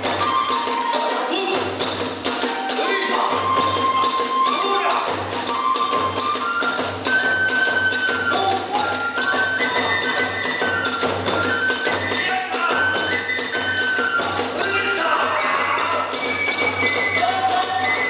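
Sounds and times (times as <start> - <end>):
bamboo flute melody: 0.0 - 18.0.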